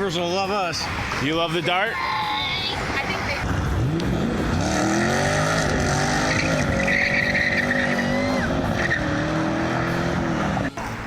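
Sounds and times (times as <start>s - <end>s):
tyres squealing: 1.7s - 3.0s, 5.7s - 9.4s
car engine at high revs: 3.4s - 10.8s.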